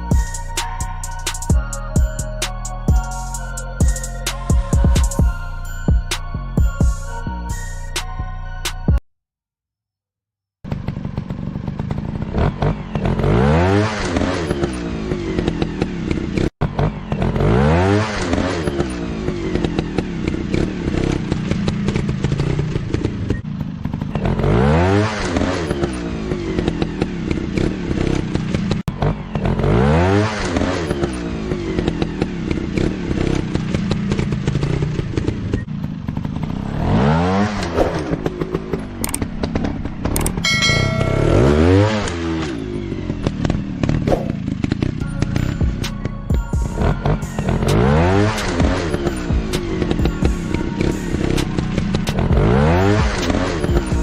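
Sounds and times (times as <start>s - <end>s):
motorcycle engine revving: 10.6s - 54.0s.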